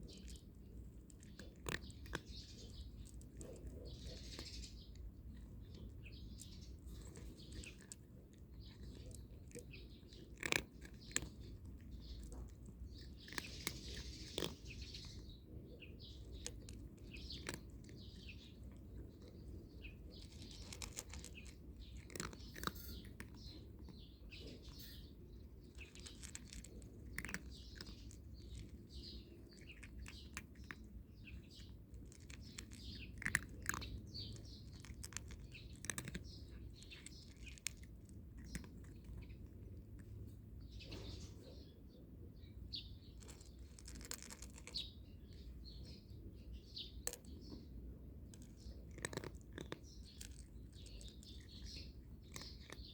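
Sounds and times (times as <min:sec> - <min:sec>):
cat crunching dry kibble: 0:00.0 - 0:41.4, 0:42.6 - 0:52.9.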